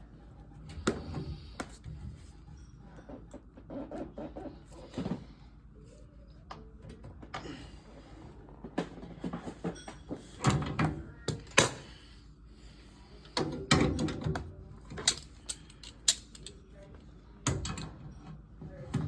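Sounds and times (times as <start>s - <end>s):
knocks and clatters of handling: 8.5s - 11.9s.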